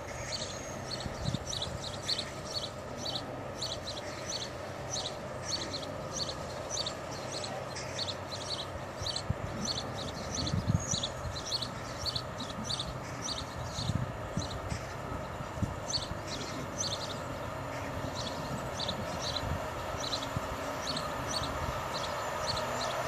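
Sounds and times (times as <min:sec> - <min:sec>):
small bird chirping: 0:00.2 - 0:14.8.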